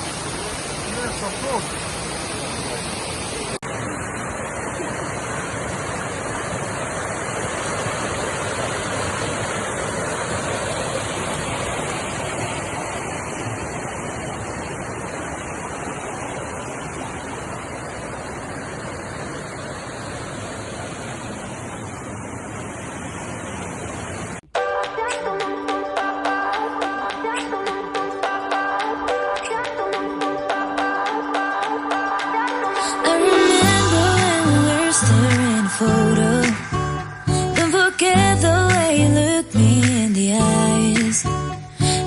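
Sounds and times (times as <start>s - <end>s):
waterfall rushing: 0.0s - 24.4s, 32.0s - 40.9s.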